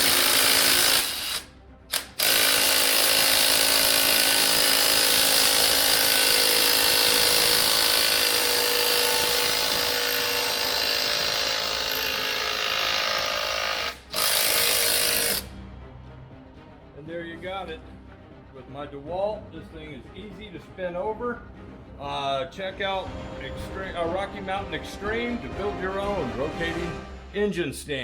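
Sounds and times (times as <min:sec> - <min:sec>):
power drill running: 0:00.0 - 0:15.5.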